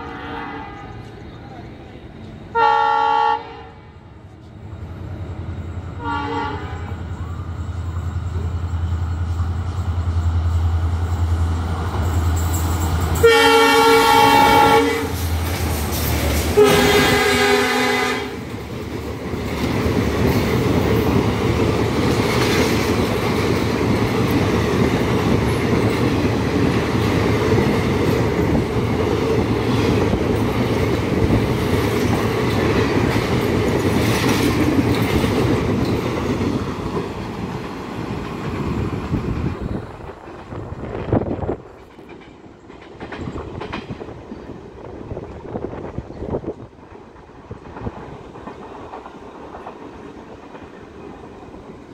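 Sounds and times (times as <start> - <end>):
train horn blasts: 0.0 - 1.1, 2.5 - 4.0, 6.0 - 7.1, 13.2 - 15.2, 16.6 - 18.5
train rushing past: 0.0 - 51.9
wheel clatter on rails: 18.5 - 44.6.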